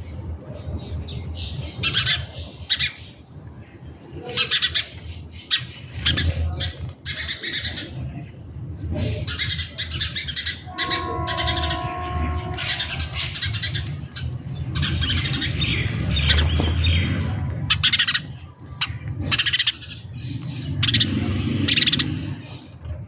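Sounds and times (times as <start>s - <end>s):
small birds chirping: 0.0s - 23.0s
low rumble: 10.6s - 23.0s
held two-pitch tone: 10.7s - 13.2s.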